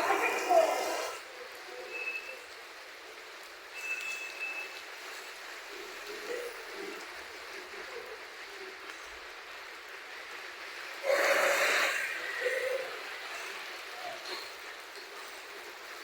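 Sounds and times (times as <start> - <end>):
water running: 0.0 - 1.2
heavy rain falling: 0.0 - 16.0.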